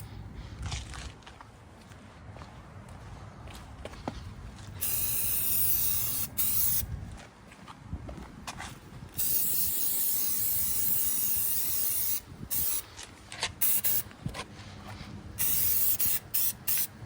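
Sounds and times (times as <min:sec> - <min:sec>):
aerosol can spraying: 0:04.8 - 0:06.8, 0:09.2 - 0:12.8, 0:13.6 - 0:14.1, 0:15.4 - 0:17.0.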